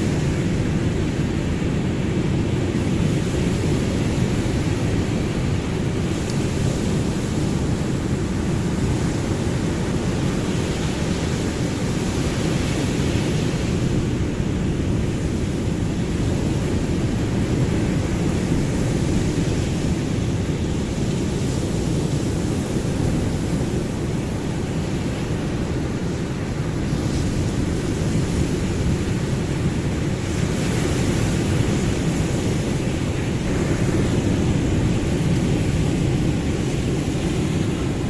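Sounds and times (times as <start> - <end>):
ocean surf rushing: 0.0 - 38.0.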